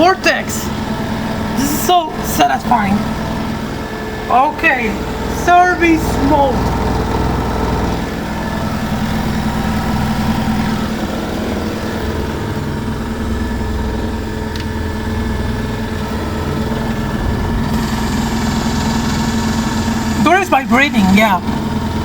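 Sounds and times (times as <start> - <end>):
washing machine spinning: 0.0 - 22.0.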